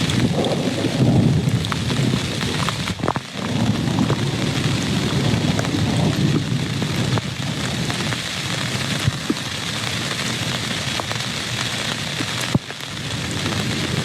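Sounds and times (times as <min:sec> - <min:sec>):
distant thunder rumble: 0:00.0 - 0:08.2
heavy rain: 0:00.0 - 0:14.0.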